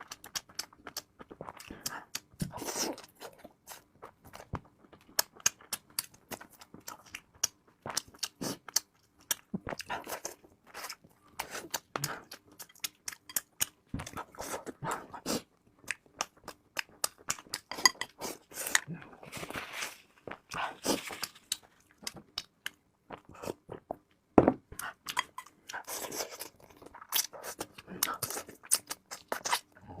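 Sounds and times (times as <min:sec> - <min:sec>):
person chewing and biting: 0:24.7 - 0:29.7.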